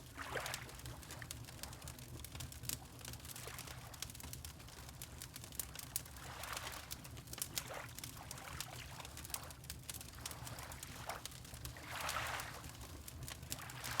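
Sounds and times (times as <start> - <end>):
fireplace crackling and popping: 1.7 - 6.2, 6.9 - 11.9.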